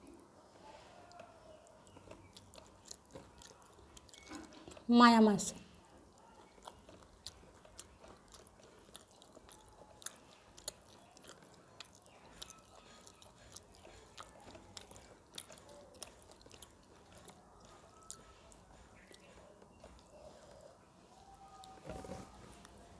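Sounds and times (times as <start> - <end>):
person chewing food: 0.0 - 4.9, 5.6 - 22.9.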